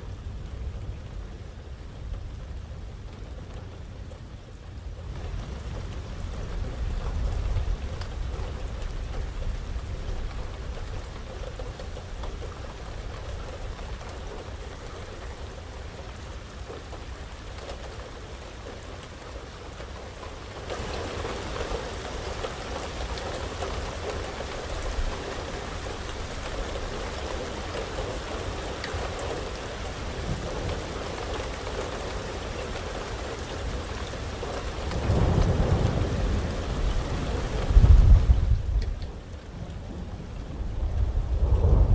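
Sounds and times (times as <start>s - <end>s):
heavy rain: 0.0s - 41.9s
thunder rumble: 34.9s - 41.9s.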